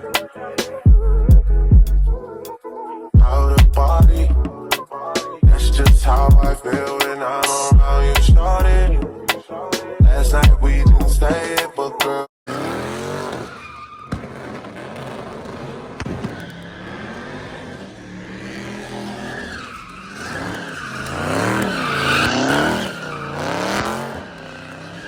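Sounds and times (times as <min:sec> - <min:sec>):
car engine revving: 0:12.5 - 0:25.0
tyres squealing: 0:12.5 - 0:25.0.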